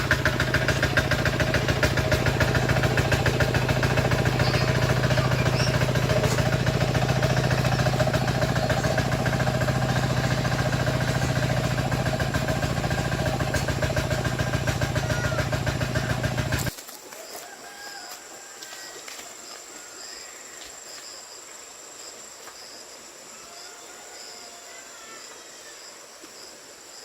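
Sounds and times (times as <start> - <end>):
engine idling: 0.0 - 16.7.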